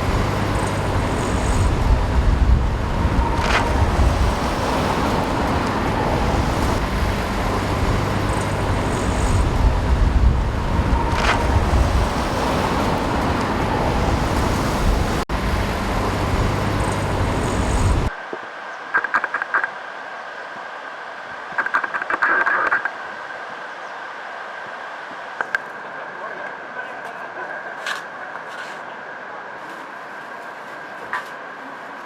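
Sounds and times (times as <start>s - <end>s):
road traffic rumble: 0.0s - 18.2s.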